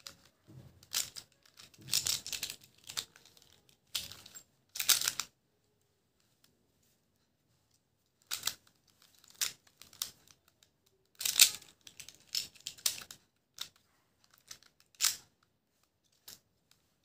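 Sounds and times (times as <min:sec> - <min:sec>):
plastic puzzle clicking turns: 0:00.0 - 0:05.3, 0:08.2 - 0:15.5.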